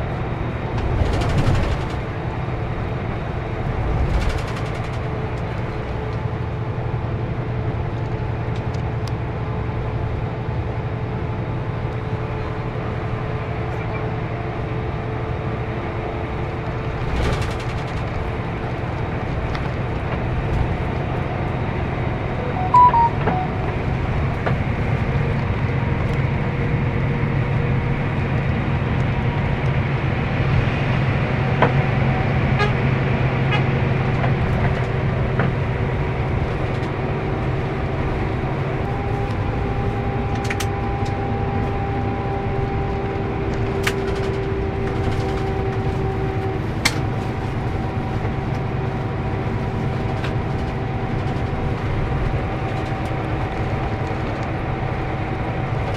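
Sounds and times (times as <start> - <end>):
coach engine hum: 0.0 - 55.9
road noise: 0.0 - 55.9
short high beep: 22.4 - 23.9.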